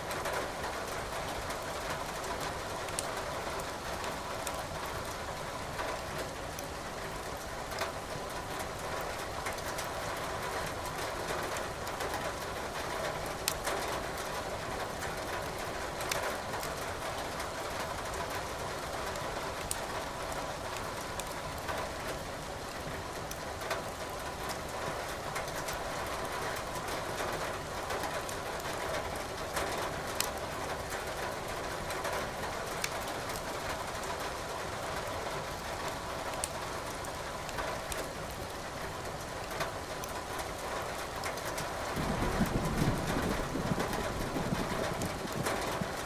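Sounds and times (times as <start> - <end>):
steady rain hiss: 0.0 - 46.0
firewood crackling in fireplace: 32.7 - 33.4, 36.3 - 36.6.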